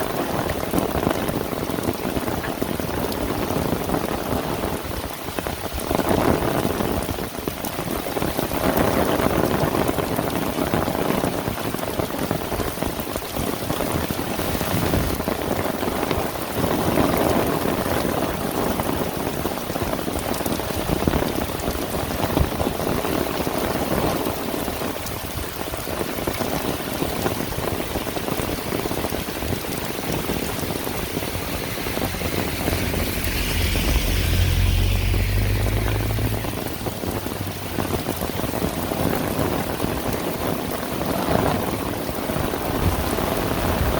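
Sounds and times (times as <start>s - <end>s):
heavy rain falling: 0.0s - 43.9s
low rumble: 28.6s - 39.0s.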